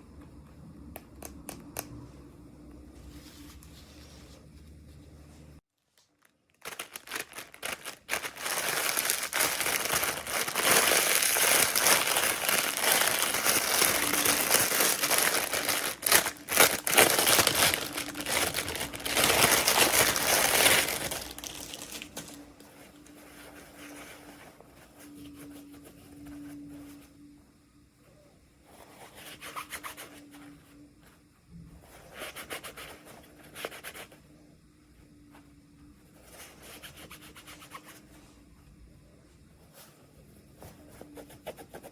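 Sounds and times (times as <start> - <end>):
packaging crinkling: 5.8 - 23.2.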